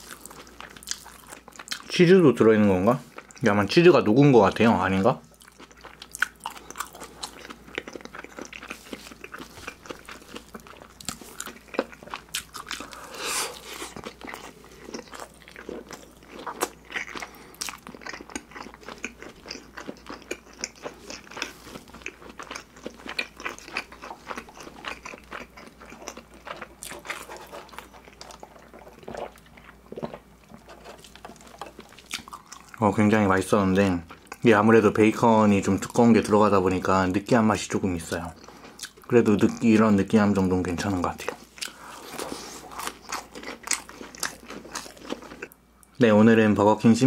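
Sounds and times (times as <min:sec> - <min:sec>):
chewing with wet crunches: 0:00.0 - 0:02.0, 0:05.3 - 0:32.9, 0:41.1 - 0:45.6.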